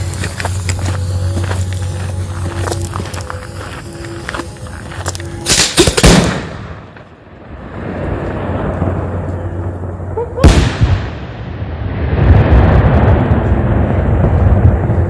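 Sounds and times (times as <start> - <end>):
firework bangs with rumbling echo: 5.5 - 15.0.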